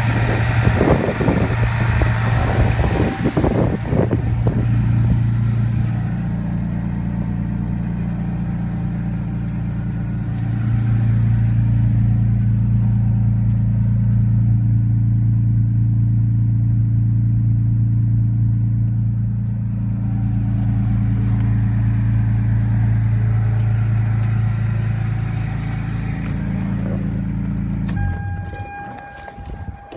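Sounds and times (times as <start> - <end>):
car engine idling: 0.0 - 29.9
steady high tone: 27.9 - 29.9.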